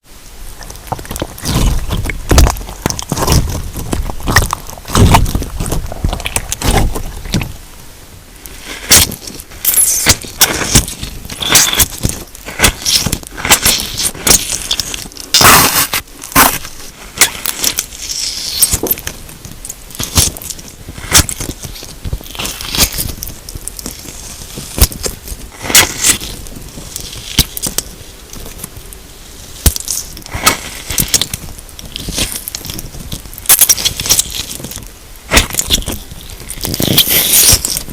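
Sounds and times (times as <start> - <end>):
slime crackling and squishing: 0.4 - 7.8, 8.4 - 37.9.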